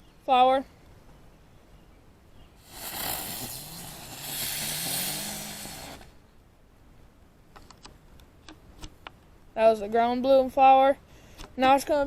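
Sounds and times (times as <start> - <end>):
spinning firework hissing: 2.6 - 6.2.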